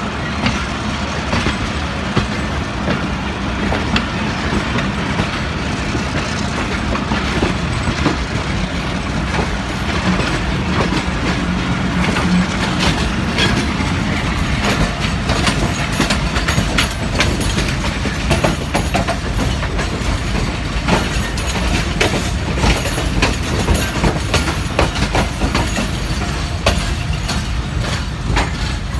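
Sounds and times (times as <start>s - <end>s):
train wheels clacking over rail joints: 0.0s - 28.9s.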